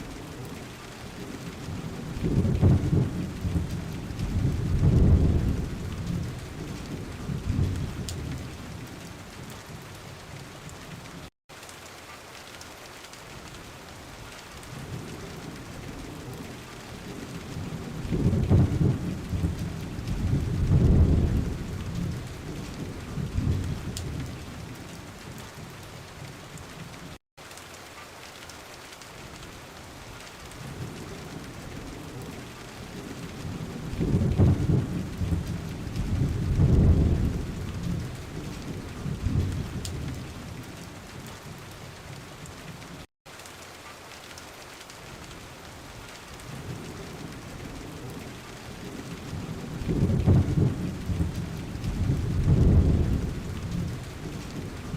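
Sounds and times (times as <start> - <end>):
low rolling thunder: 0.0 - 9.8, 14.7 - 25.7, 30.6 - 41.6, 46.4 - 54.9
steady rain falling: 0.0 - 54.9.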